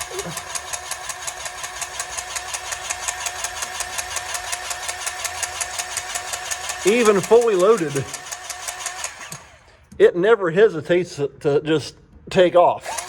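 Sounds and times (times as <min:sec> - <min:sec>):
small engine ticking: 0:00.0 - 0:09.7.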